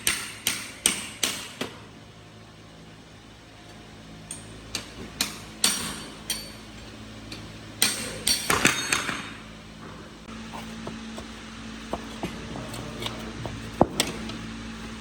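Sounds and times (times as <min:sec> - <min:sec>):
hammer striking metal: 0:00.0 - 0:01.8, 0:04.3 - 0:06.7, 0:07.8 - 0:09.4.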